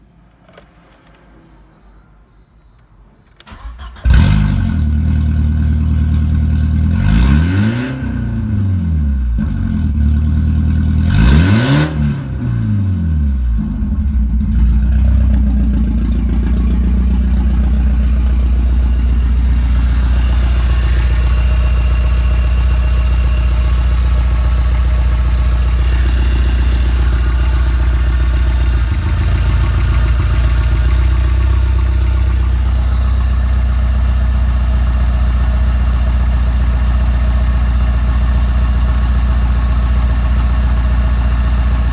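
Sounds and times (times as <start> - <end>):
car engine cranking: 3.4 - 6.8, 13.6 - 34.5
car engine idling: 3.5 - 7.2, 8.4 - 11.6, 12.6 - 41.9
car engine revving: 3.5 - 34.8.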